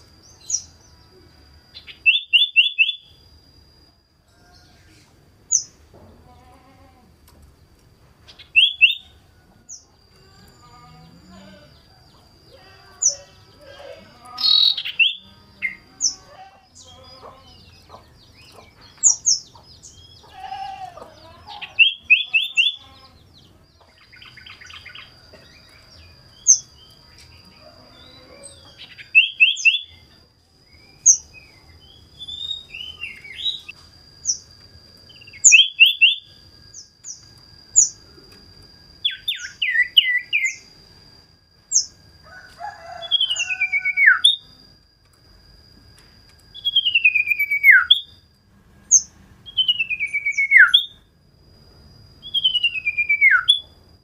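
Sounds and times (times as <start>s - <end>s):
thin high whine: 8.0s - 54.0s
bird chirps and trills: 8.3s - 11.9s, 12.6s - 27.4s, 35.1s - 37.2s.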